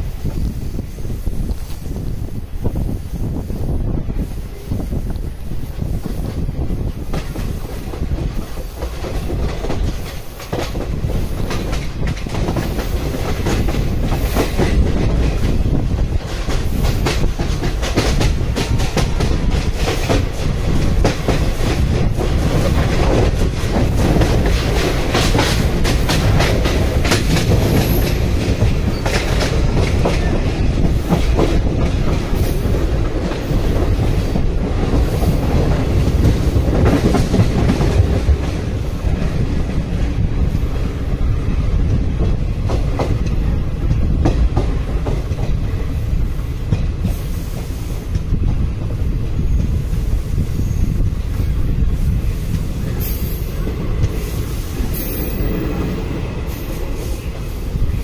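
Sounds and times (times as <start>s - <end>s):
train rumbling: 0.0s - 58.0s
wheels clacking over rail joints: 7.0s - 40.2s.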